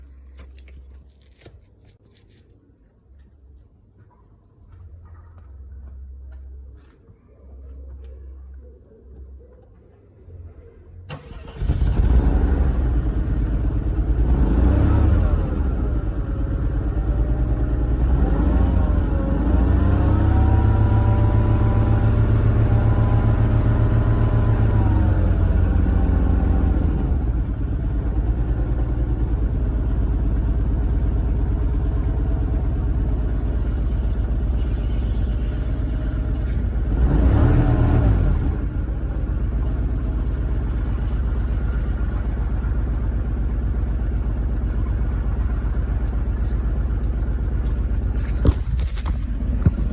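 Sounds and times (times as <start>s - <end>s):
car engine starting and revving: 11.1s - 27.7s, 36.1s - 40.9s.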